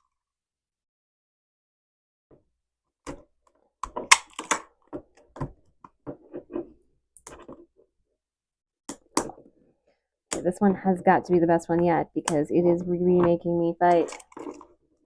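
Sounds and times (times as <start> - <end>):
packaging clicks: 3.8 - 4.7, 13.9 - 14.7
plastic packaging crinkling: 13.4 - 14.8.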